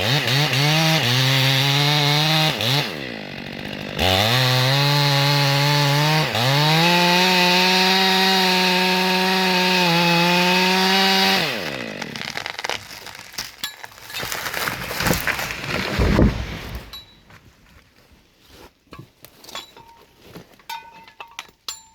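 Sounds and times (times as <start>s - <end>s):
chainsaw cutting: 0.0s - 17.3s
wood cracking: 10.8s - 17.6s
tree falling with heavy thud: 11.8s - 17.4s.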